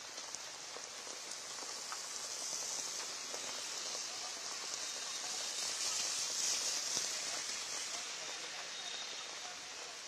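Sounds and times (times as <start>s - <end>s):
heavy rain falling: 0.0s - 10.0s.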